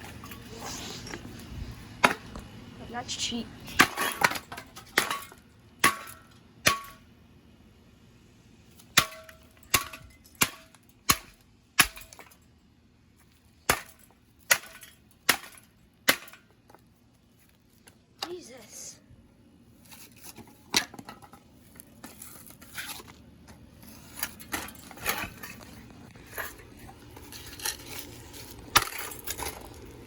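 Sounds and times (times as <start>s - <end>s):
hammer striking metal fan: 5.0s - 7.0s.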